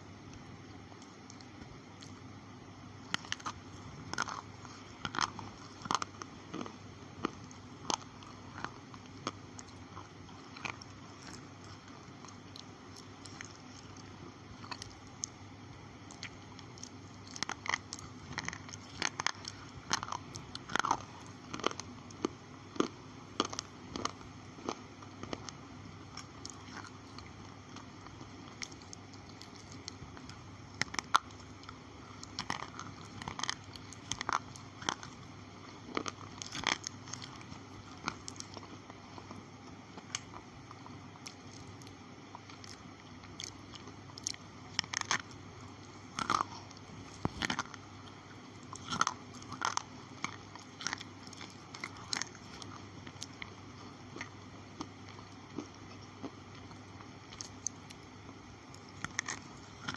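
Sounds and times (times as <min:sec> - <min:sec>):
steady background hum: 0:00.0 - 0:59.9
pencils crunching when chewed: 0:00.3 - 0:59.9.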